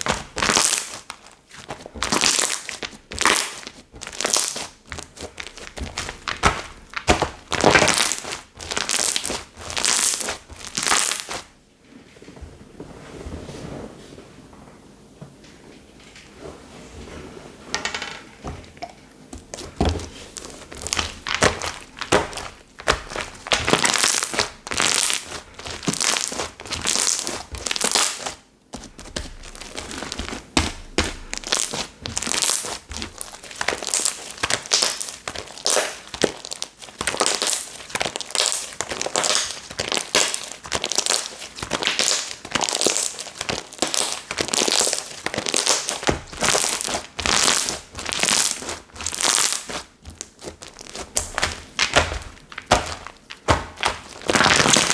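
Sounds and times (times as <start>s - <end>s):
slime squishing and popping: 0.0s - 11.5s, 19.4s - 54.9s.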